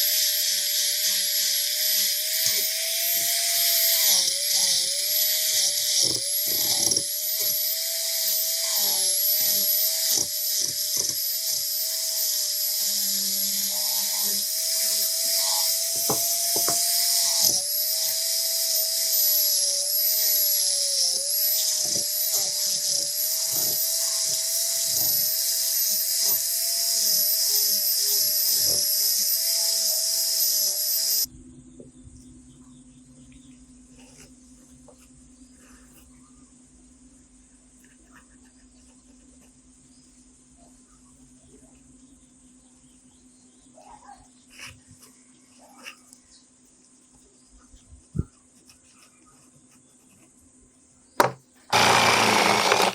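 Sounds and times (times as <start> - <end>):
electric rotary tool grinding: 0.0 - 31.3, 51.2 - 52.9.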